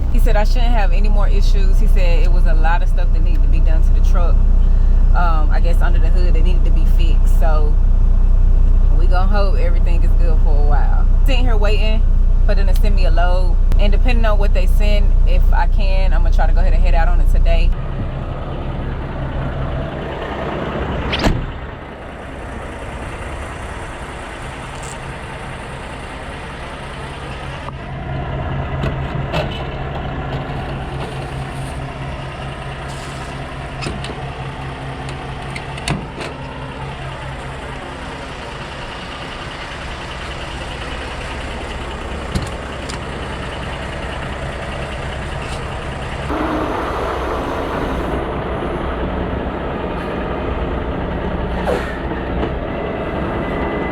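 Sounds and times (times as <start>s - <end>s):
diesel truck engine idling: 0.0s - 53.9s
rushing rumble: 0.0s - 53.9s
vehicle passing by: 43.2s - 53.9s.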